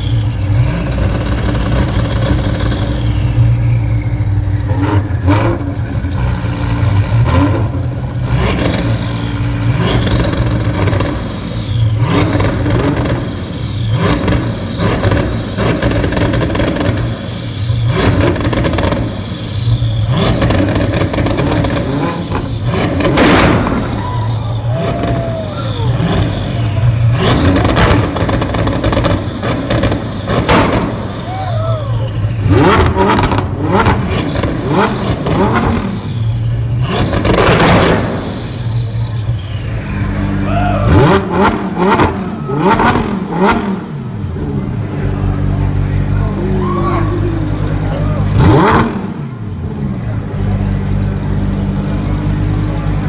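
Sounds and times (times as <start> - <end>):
exhaust crackles: 0.0 - 53.0
supercar engines revving: 0.0 - 53.0.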